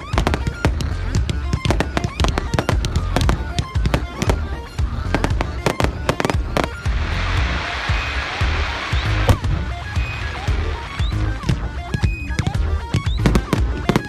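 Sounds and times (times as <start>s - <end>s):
background music: 0.0s - 14.0s
fireworks cracks and bangs: 0.0s - 14.0s
fireworks hissing crackle: 0.0s - 14.0s.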